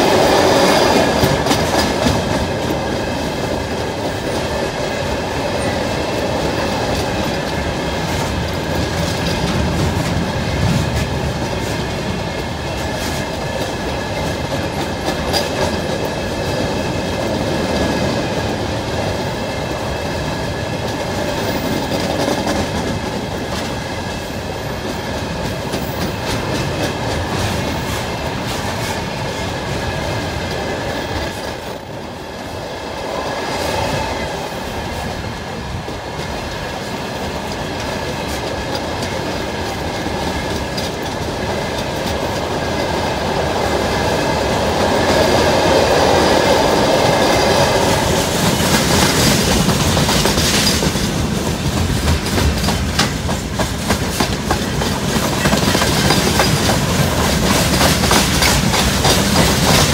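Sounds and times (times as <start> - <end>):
freight train rumbling: 0.0 - 59.9
wheels clattering over rail joints: 35.8 - 59.9.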